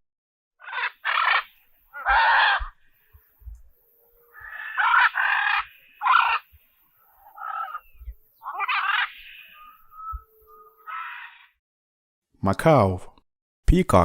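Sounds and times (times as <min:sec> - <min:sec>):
macaw squawking: 0:00.6 - 0:11.5.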